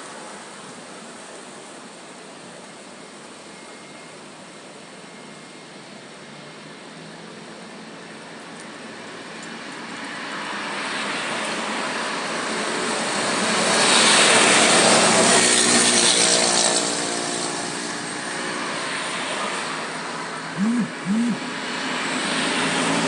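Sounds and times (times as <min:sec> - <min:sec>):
passing engine drone: 0:20.5 - 0:21.6.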